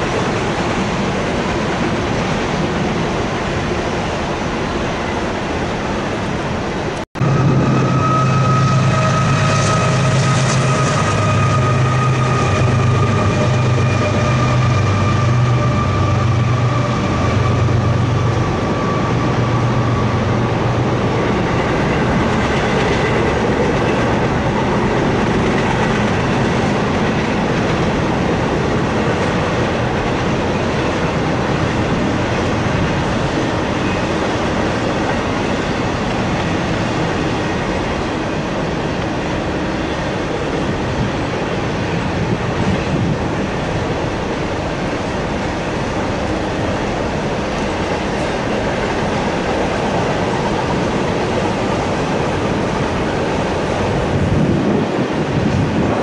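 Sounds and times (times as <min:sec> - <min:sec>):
freight train wheels on rail: 0:00.0 - 0:56.0
thin high whine: 0:07.2 - 0:17.9.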